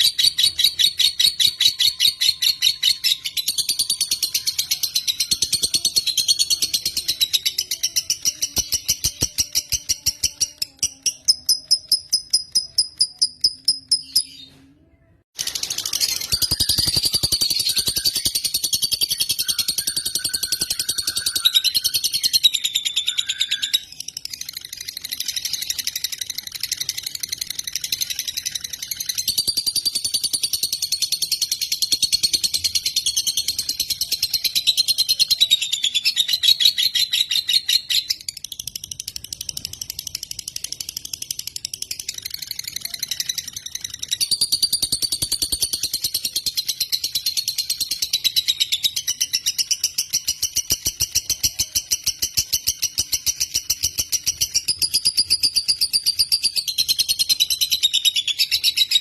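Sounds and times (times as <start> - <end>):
bird chattering trill: 0.0 - 14.4, 15.4 - 38.4.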